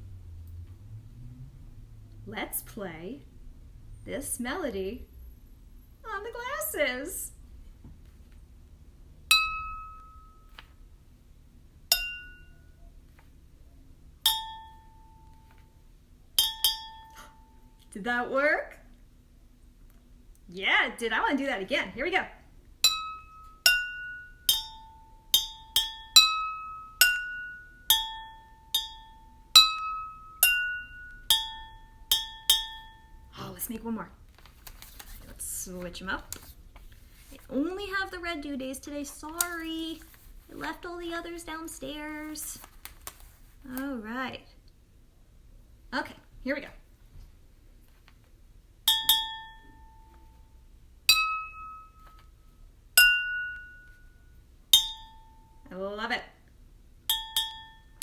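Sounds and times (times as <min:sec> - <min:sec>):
spoon tapping water glasses: 0:11.9 - 0:12.5, 0:14.3 - 0:14.8, 0:16.4 - 0:17.2, 0:22.8 - 0:26.4, 0:27.0 - 0:33.1, 0:48.9 - 0:49.8, 0:54.8 - 0:55.2, 0:57.1 - 0:57.9
spoon clinking water glasses: 0:57.1 - 0:57.8.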